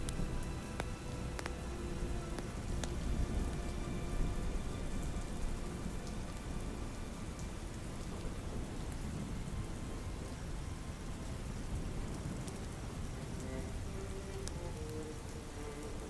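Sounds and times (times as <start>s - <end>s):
campfire crackling pops: 0.0s - 3.7s
low rumble: 0.0s - 10.0s
ambient music pad: 0.0s - 16.0s
soft rain: 0.0s - 16.0s.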